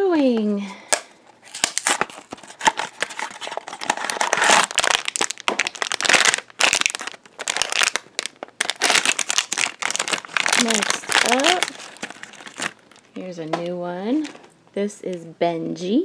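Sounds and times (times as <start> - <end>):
packaging crinkling and tearing: 0.9 - 13.2, 14.1 - 14.6.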